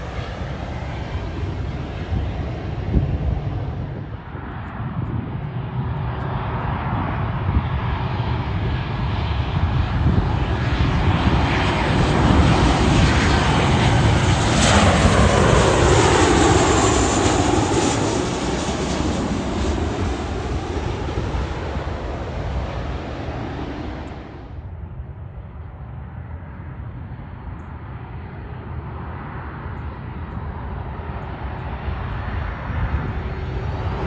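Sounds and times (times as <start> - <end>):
jet airliner passing: 0.0 - 34.0.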